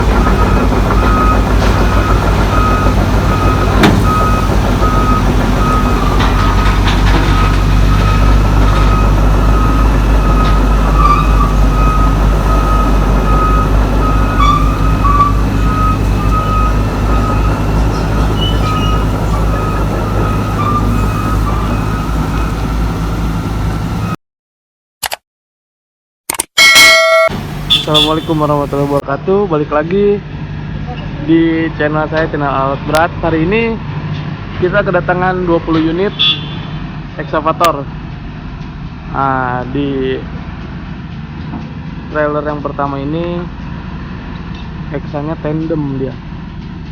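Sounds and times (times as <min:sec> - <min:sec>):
diesel machinery rumbling: 0:00.0 - 0:24.2, 0:27.3 - 0:46.9
backup alarm beeping: 0:00.2 - 0:22.9, 0:26.6 - 0:29.0.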